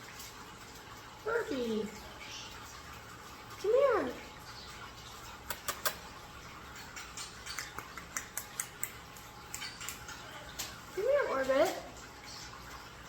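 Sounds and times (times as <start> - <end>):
faint steady background noise: 0.0 - 13.0
sharp clicks and ticks: 5.5 - 6.1, 6.9 - 10.7.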